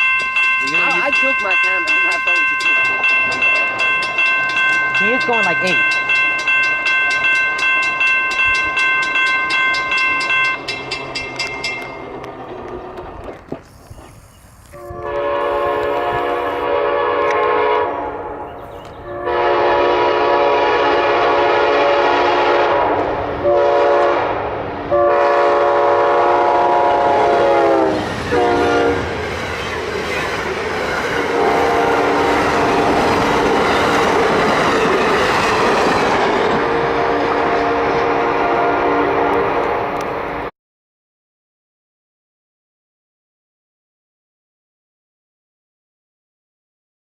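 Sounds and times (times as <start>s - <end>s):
locomotive air horn: 14.7s - 18.4s, 19.0s - 29.1s, 31.3s - 33.5s, 36.6s - 40.0s
train wheels clacking over rails: 28.0s - 38.1s.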